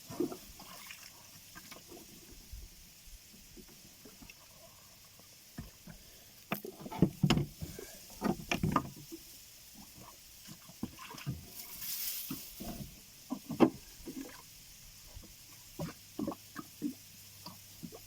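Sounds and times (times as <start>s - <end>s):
oar splashes and knocks: 5.6s - 9.2s, 9.8s - 14.4s.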